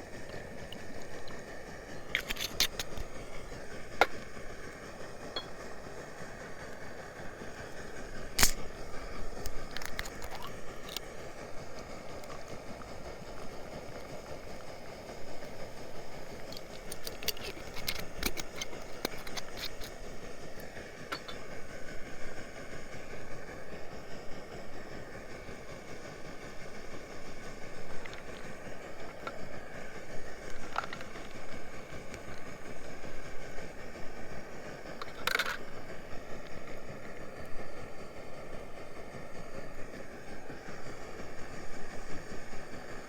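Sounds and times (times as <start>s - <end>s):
steady background noise: 0.0s - 43.0s
small objects clicking and clinking: 2.0s - 3.1s, 16.4s - 20.0s, 35.0s - 35.7s.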